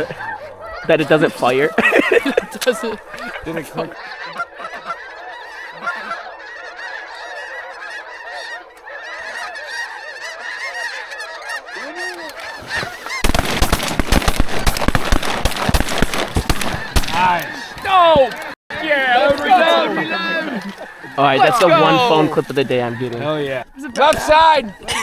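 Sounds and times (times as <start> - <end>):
geese honking: 0.0 - 25.0
rapid sharp cracks: 12.2 - 18.5.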